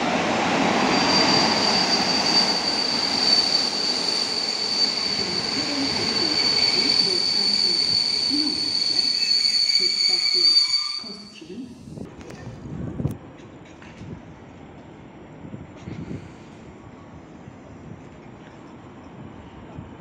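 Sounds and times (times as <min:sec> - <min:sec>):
train coaches rumbling: 0:00.0 - 0:15.4
high-pitched brake squeal: 0:00.7 - 0:11.8.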